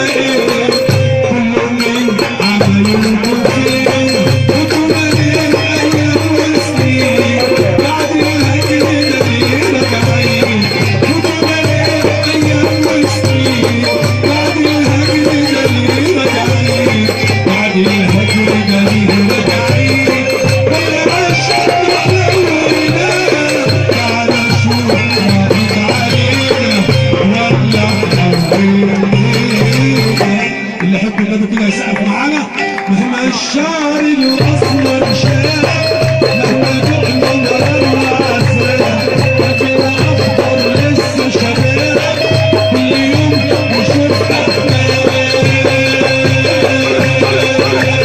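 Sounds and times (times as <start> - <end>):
pulsing bass beat: 0.0 - 32.2, 33.8 - 48.0
percussion with shakers: 0.0 - 48.0
string instrument melody: 0.0 - 48.0.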